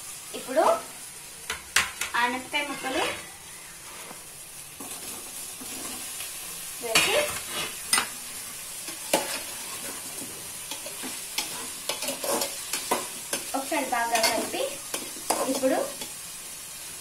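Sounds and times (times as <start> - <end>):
vegetables sizzling in oil: 0.0 - 17.0
metal spatula scraping a pot: 2.6 - 4.2, 4.8 - 6.2, 6.9 - 8.1, 8.9 - 16.2.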